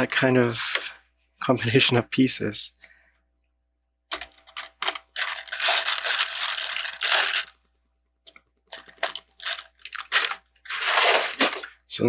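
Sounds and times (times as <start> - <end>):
plastic pieces rattling: 4.1 - 7.6, 8.7 - 11.7.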